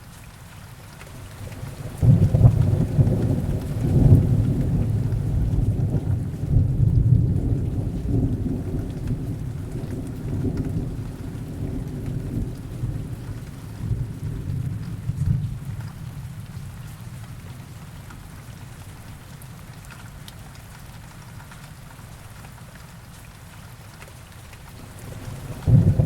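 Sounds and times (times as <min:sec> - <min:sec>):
heavy rain falling: 0:00.0 - 0:26.0
thunder rumbling: 0:01.4 - 0:16.5, 0:24.8 - 0:26.0.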